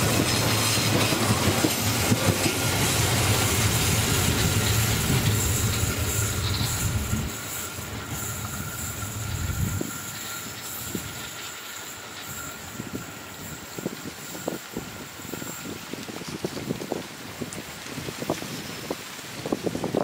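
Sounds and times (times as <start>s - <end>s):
train rumbling past: 0.0s - 19.4s.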